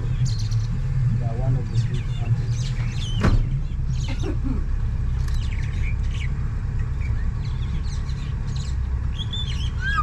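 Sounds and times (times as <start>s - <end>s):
birds chirping: 0.0s - 10.0s
boat engine rumble: 0.0s - 10.0s
bird repeated arching calls: 7.6s - 10.0s.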